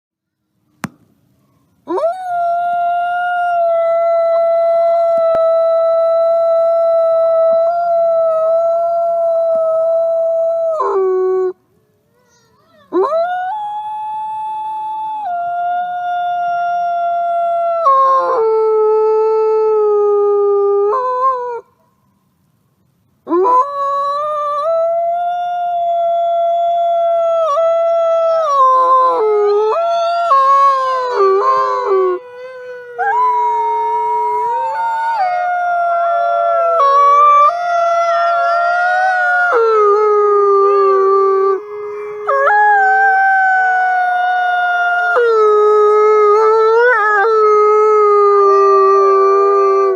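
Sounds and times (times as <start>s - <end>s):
wolves howling: 26.1s - 49.9s.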